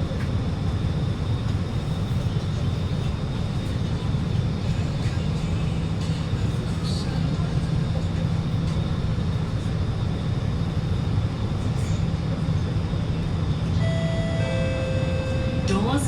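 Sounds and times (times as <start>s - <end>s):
train carriage hum: 0.0s - 16.0s
two-tone electronic chime: 13.8s - 15.8s.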